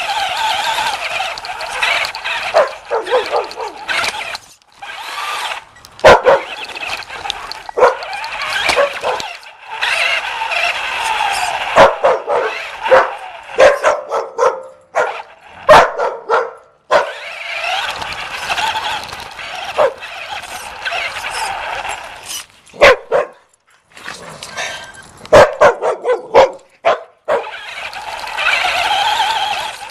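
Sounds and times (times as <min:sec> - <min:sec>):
puppy whining: 0:00.0 - 0:05.6
puppy barking and yipping: 0:00.1 - 0:17.9, 0:19.6 - 0:20.2, 0:22.8 - 0:23.5, 0:25.3 - 0:29.8.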